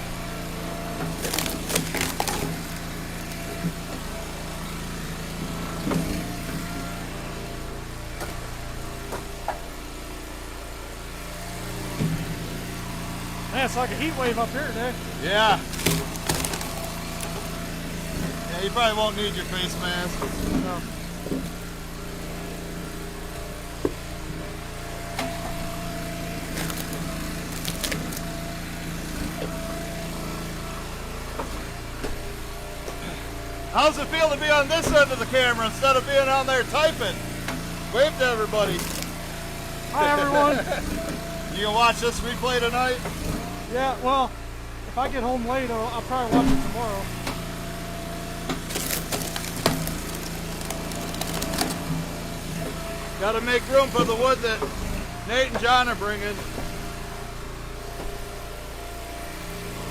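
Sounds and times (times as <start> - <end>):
log splitter engine running: 0.0 - 59.9
firewood cracking and splintering: 0.9 - 7.2, 12.4 - 24.2, 25.0 - 43.5, 46.6 - 54.4.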